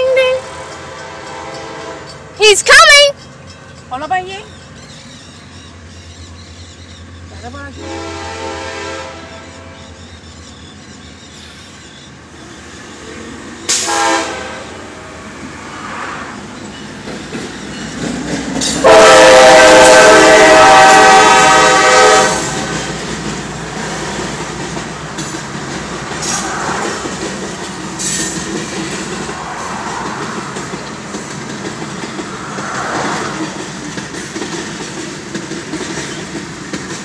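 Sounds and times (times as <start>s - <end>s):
locomotive horn: 0.0s - 3.1s, 7.8s - 9.9s, 13.7s - 15.1s, 18.8s - 22.8s
freight cars rumbling past: 11.5s - 37.0s.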